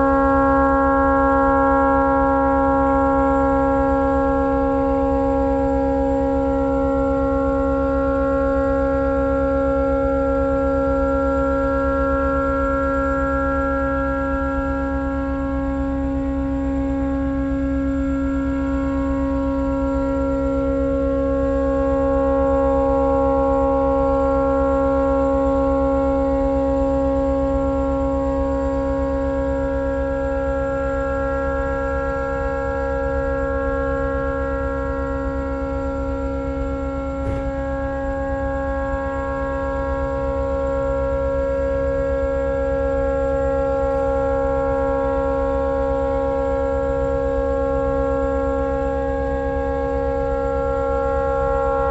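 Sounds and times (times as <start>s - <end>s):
tugboat horn blast: 30.8s - 51.9s.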